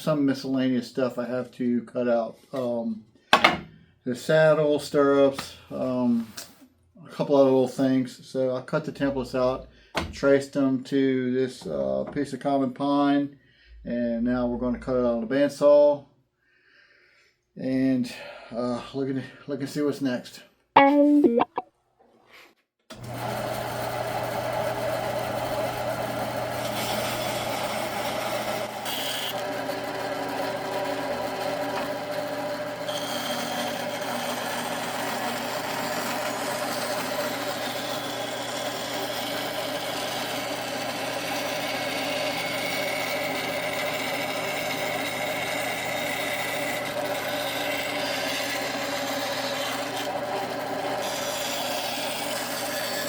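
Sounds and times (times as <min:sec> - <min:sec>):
bandsaw cutting wood: 0:22.9 - 0:53.0.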